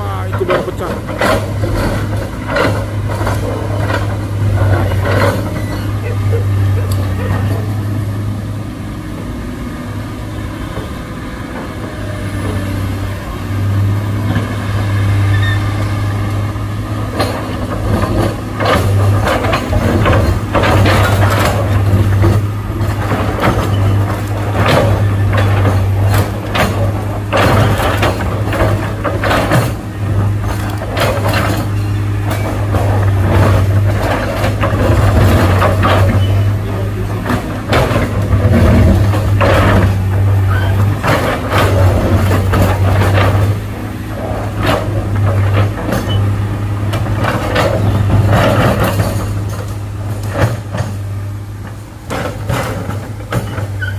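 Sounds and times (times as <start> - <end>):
diesel engine droning: 0.0 - 53.9.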